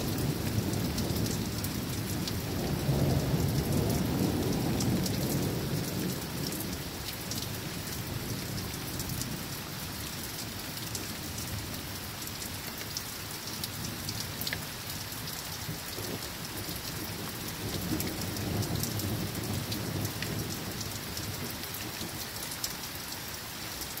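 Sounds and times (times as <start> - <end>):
distant thunder rumbling: 0.0 - 9.3, 15.7 - 22.1
raindrops ticking on a surface: 0.0 - 24.0
steady rain falling: 0.0 - 24.0.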